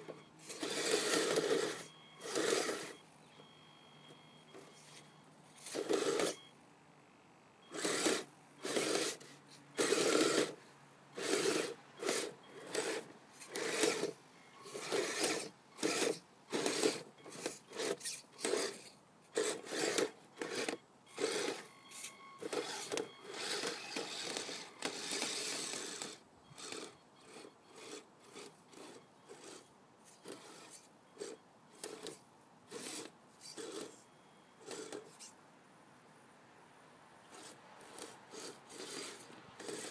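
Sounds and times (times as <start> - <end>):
toy snowcat electric drive whirring: 0.0 - 6.5, 7.6 - 35.4, 37.2 - 39.9.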